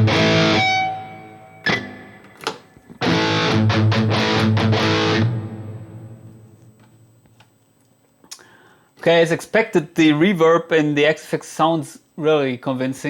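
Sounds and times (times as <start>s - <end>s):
distorted electric guitar: 0.0s - 7.0s.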